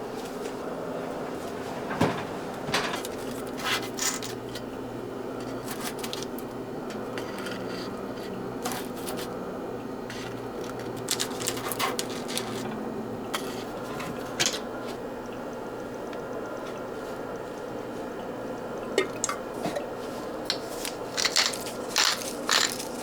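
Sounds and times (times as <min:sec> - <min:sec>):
steady low hum: 0:00.0 - 0:23.0
kitchen items clicking and knocking: 0:20.5 - 0:23.0.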